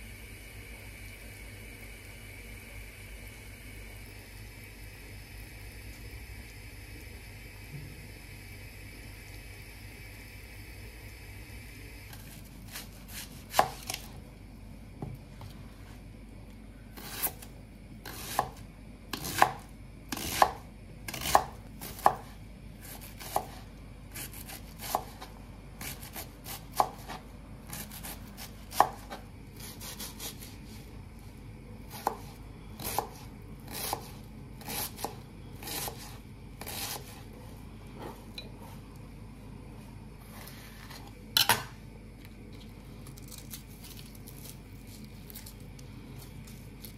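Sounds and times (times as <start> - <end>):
knife chopping on cutting board: 12.1 - 14.1, 18.0 - 23.6, 31.9 - 37.2.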